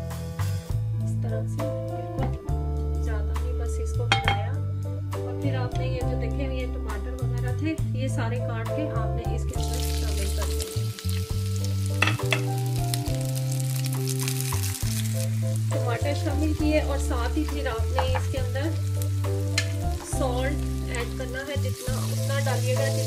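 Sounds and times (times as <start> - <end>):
background music with bass notes: 0.0 - 23.0
food sizzling in oil: 9.5 - 23.0.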